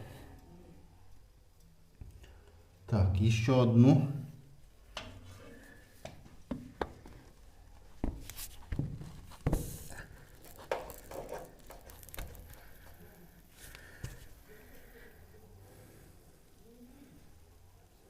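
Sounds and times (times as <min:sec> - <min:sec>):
plastic pipe fittings being handled: 0:08.0 - 0:14.4.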